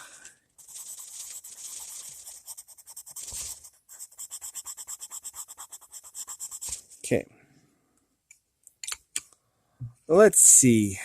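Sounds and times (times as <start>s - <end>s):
pencil scratching on paper: 0.6s - 7.0s.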